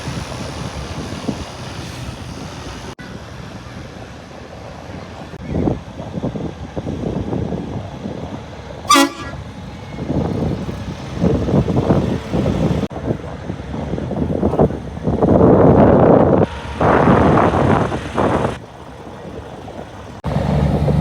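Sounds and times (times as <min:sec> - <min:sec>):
trucks passing: 0:00.0 - 0:21.0
horn toot: 0:08.9 - 0:09.6.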